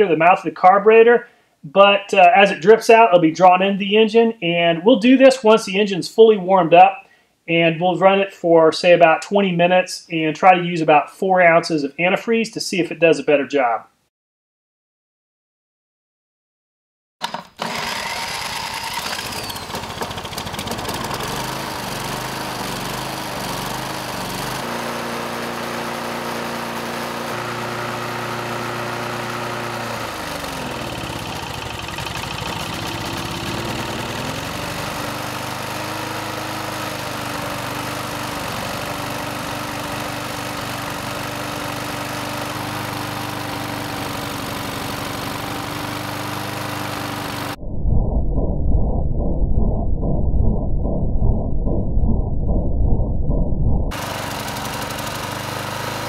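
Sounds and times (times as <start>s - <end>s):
lawn mower engine running: 17.2s - 47.6s, 53.9s - 56.0s.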